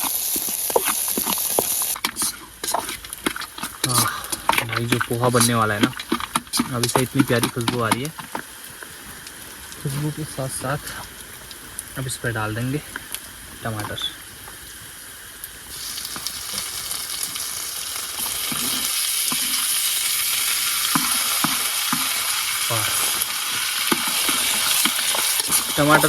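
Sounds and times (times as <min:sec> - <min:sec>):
stirring scrapes and clicks: 0:00.0 - 0:08.5, 0:18.2 - 0:19.7, 0:20.8 - 0:22.8, 0:23.5 - 0:26.0
tomatoes sizzling in hot oil: 0:00.0 - 0:26.0.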